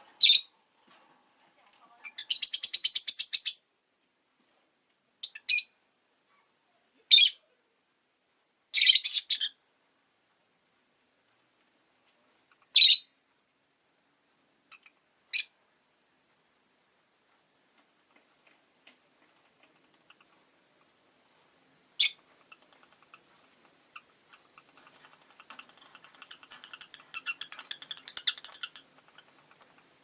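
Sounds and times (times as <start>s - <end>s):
lovebirds chirping and chattering: 0.1s - 0.6s, 2.0s - 3.7s, 8.7s - 9.6s, 12.5s - 13.2s, 14.7s - 15.6s, 19.4s - 20.9s, 22.0s - 30.0s.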